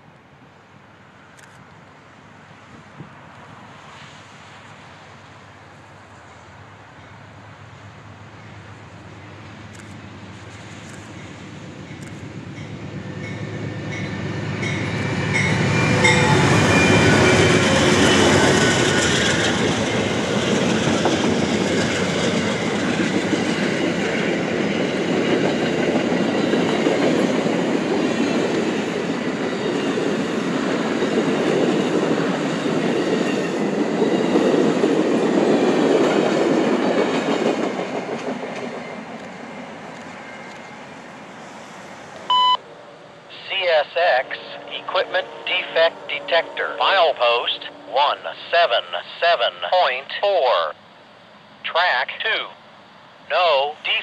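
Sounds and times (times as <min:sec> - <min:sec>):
train wheels rushing on rails: 0:02.2 - 0:42.3.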